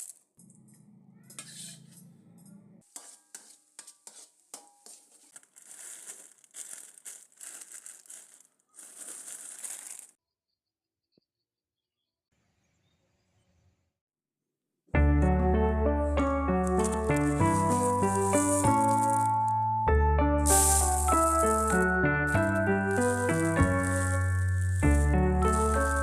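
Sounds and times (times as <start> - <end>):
household items crinkling and clattering: 0.0 - 0.7, 2.8 - 10.2, 16.6 - 19.6, 20.4 - 26.0.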